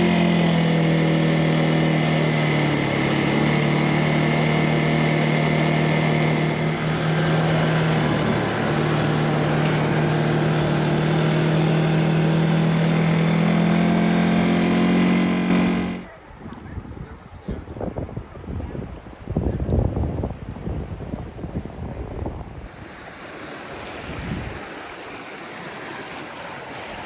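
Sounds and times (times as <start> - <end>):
atv engine running: 0.0 - 16.3, 22.2 - 27.0.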